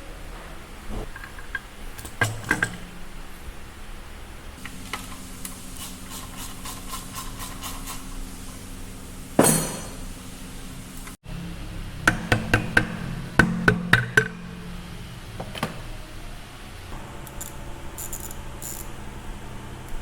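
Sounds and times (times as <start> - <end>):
low steady hum: 0.0 - 20.0
loud metallic clank: 0.4 - 3.3, 9.4 - 10.1
metal tools clicking: 1.2 - 3.0, 17.3 - 19.0.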